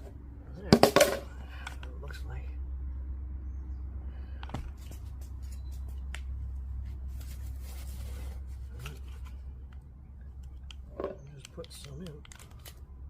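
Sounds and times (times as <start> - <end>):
steady low rumble: 0.0 - 13.0
sharp clicks: 10.4 - 12.8.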